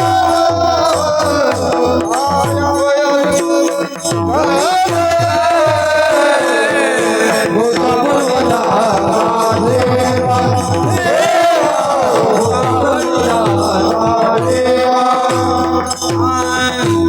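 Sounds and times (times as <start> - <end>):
person singing long notes: 0.0 - 17.0.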